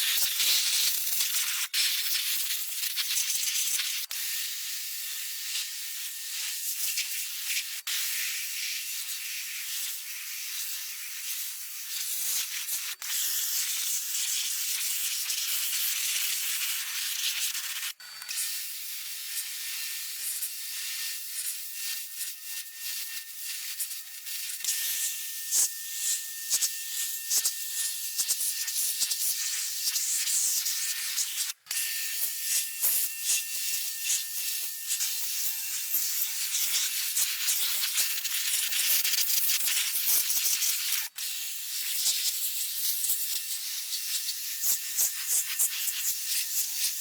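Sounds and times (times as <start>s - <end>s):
quick small scrapes and clicks: 28.2s - 47.0s.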